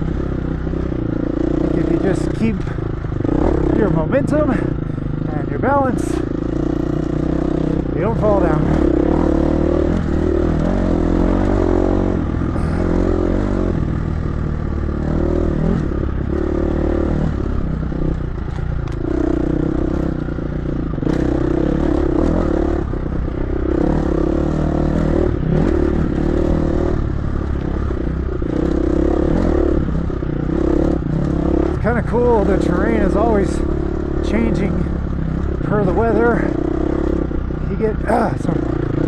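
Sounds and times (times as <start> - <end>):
dirt bike engine revving: 0.0 - 39.0.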